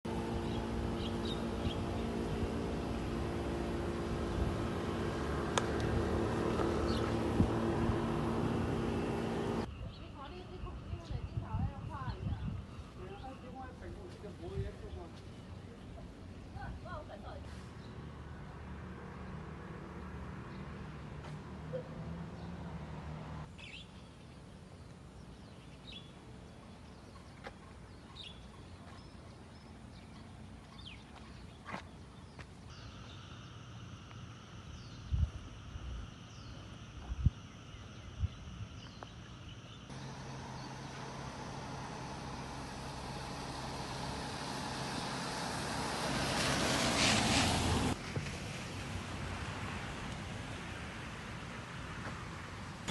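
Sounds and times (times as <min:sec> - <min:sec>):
car passing: 0:00.0 - 0:09.7, 0:17.5 - 0:23.5, 0:39.9 - 0:52.9
low steady hum: 0:00.0 - 0:14.0, 0:32.7 - 0:48.0.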